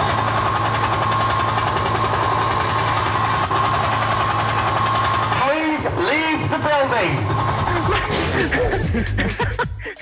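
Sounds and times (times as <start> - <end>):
helicopter rotor chop through speaker: 0.0 - 10.0.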